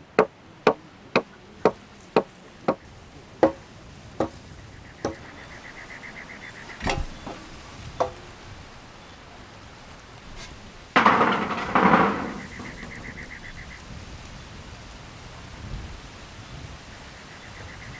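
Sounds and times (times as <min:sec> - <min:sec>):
dull thud: 0:06.8 - 0:08.3, 0:11.0 - 0:13.2.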